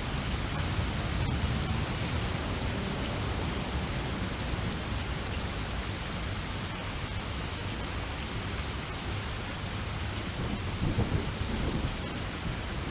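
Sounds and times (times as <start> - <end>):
steady rain falling: 0.0 - 12.9
low thunder rumble: 10.4 - 12.9.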